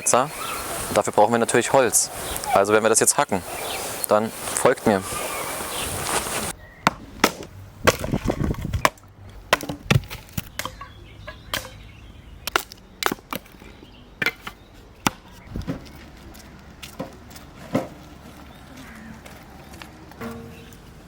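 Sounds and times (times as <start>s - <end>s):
axe chopping wood: 6.8s - 10.8s.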